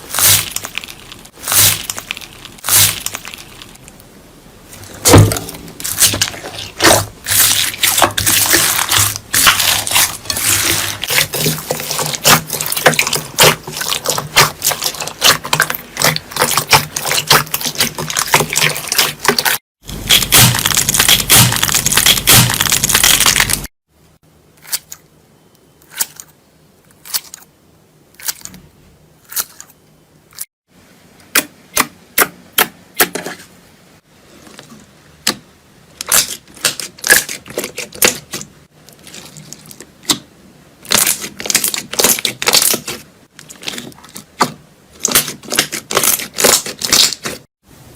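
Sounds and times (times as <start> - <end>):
slime crackling and popping: 0.0 - 3.9, 5.1 - 23.7, 45.0 - 47.4
slime squelching: 0.0 - 4.0, 4.7 - 23.7, 36.0 - 47.5.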